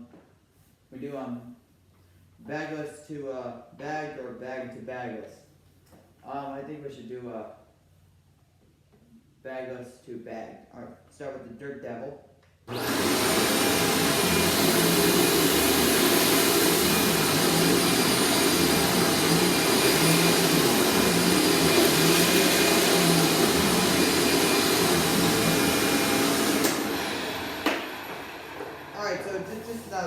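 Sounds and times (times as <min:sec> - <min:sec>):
motor winding down with falling whine: 0:12.7 - 0:29.3
upright vacuum cleaner running: 0:12.7 - 0:30.0.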